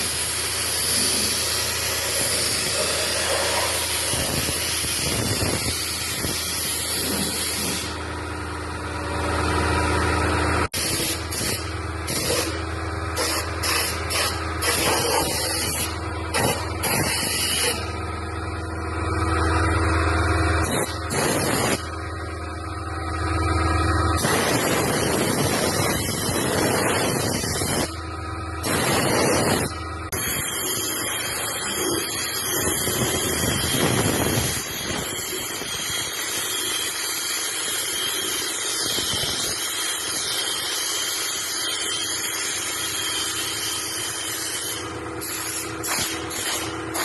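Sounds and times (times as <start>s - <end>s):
low hum: 0.8s - 34.7s.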